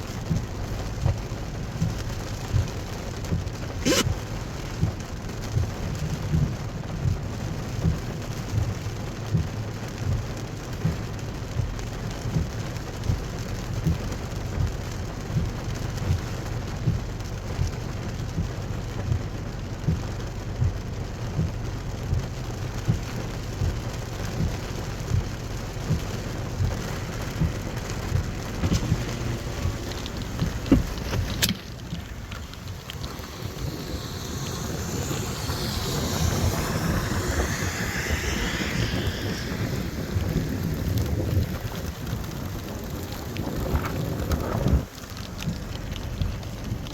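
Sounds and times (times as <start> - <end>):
heavy rain on a vehicle: 0.0 - 46.9
hissing rush of water: 0.0 - 46.9
low rumble: 0.0 - 46.9
low thumps: 21.4 - 42.2.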